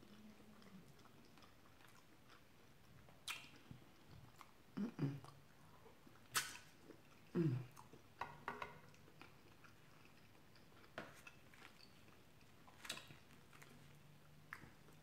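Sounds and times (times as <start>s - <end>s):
chewing food: 0.0s - 15.0s
wet mouth clicks: 3.2s - 4.1s, 6.3s - 7.9s.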